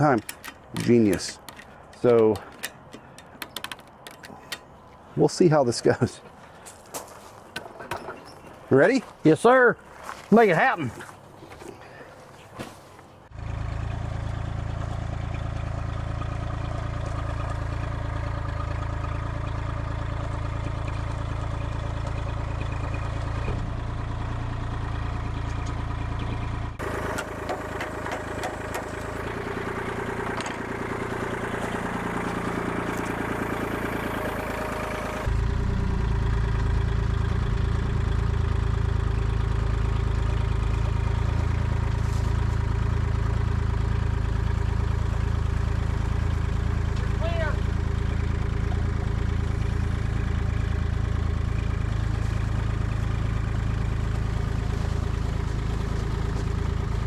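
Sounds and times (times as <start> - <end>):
rattles and clatter: 0.0 - 5.0, 26.8 - 35.3
forklift engine running: 0.0 - 5.2, 13.2 - 57.0.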